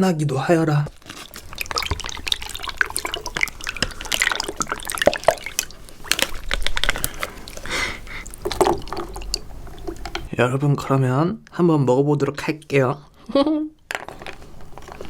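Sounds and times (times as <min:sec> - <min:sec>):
sticky liquid dripping and sloshing: 0:00.2 - 0:10.3.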